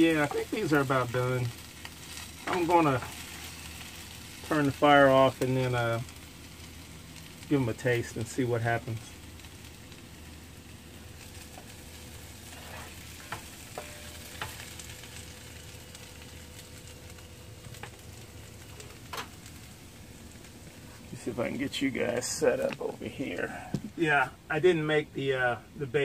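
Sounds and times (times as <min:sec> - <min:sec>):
potatoes and onions sizzling in pan: 0:00.0 - 0:24.8
spatula scraping pan: 0:12.4 - 0:14.6.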